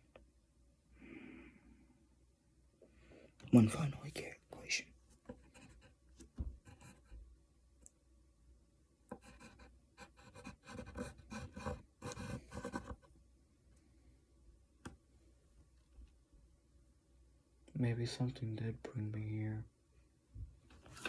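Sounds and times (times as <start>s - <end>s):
pen scratching on paper: 5.3s - 5.9s, 6.7s - 7.1s, 9.1s - 13.1s.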